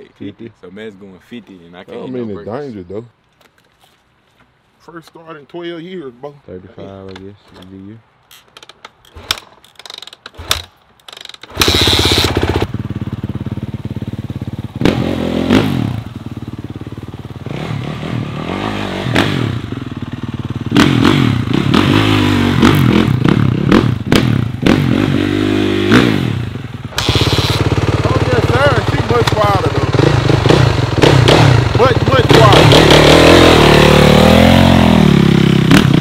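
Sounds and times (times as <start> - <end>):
motorcycle engine revving: 10.3 - 10.7, 11.5 - 36.0.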